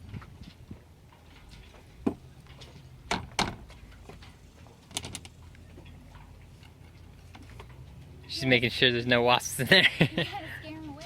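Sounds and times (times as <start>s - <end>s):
hatch knocks and clunks: 2.0s - 4.2s.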